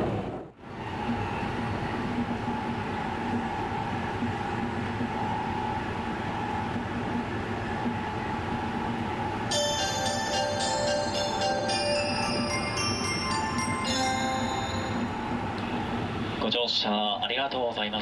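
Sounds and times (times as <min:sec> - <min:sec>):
chime melody: 0:09.5 - 0:15.5.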